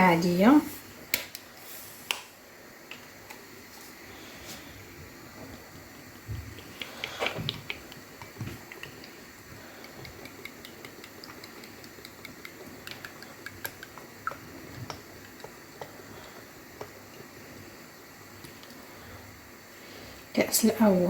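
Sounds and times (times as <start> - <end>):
glass tapping mixing bowl: 9.8 - 15.6.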